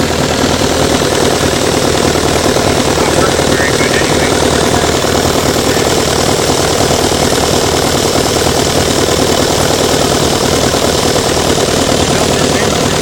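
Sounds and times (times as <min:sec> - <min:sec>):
small model engine running: 0:00.0 - 0:13.0.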